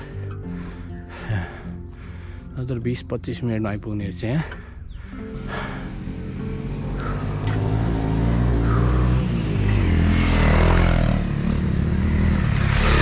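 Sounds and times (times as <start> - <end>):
motorcycle engine revving: 5.4 - 13.0.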